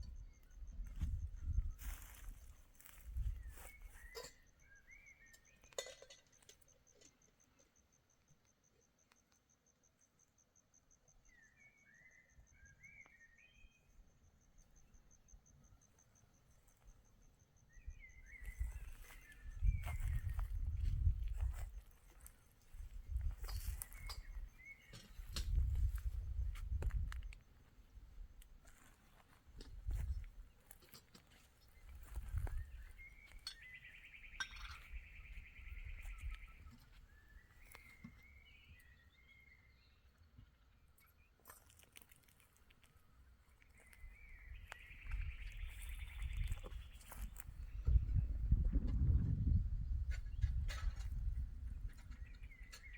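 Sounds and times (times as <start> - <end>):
cricket chirping: 0.0 - 27.5.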